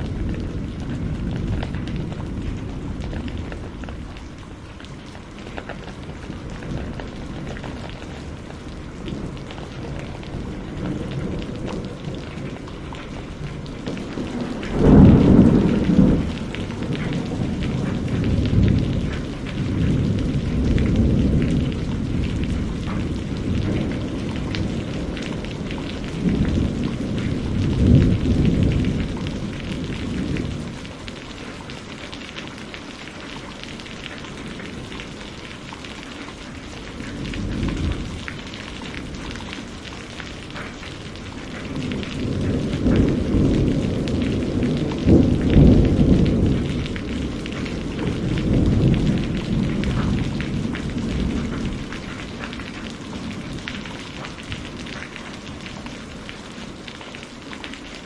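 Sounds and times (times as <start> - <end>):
thunder crack: 0.0 - 4.3, 5.4 - 31.0, 40.5 - 53.5
steady rain: 0.0 - 58.0
thunder rumbling: 0.0 - 58.0.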